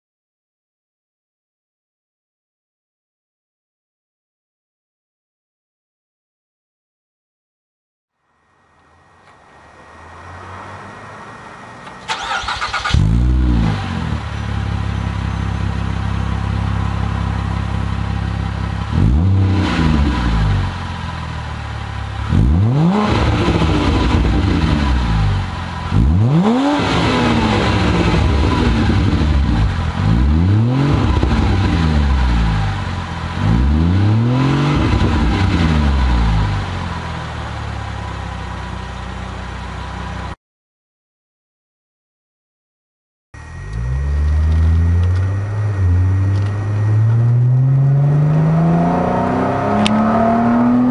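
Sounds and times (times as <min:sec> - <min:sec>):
car engine starting and revving: 0:09.2 - 0:40.4, 0:43.4 - 0:50.9.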